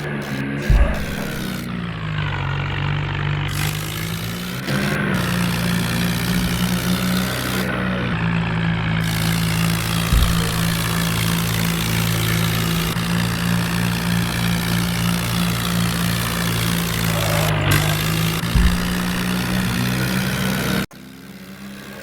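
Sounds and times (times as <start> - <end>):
tractor engine idling: 0.0 - 22.0
short thump: 0.6 - 1.8, 4.9 - 14.8, 17.0 - 20.4.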